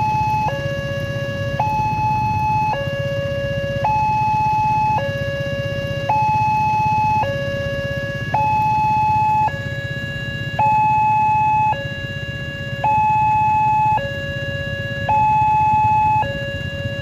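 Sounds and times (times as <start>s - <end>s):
level-crossing two-tone alarm: 0.0s - 17.0s.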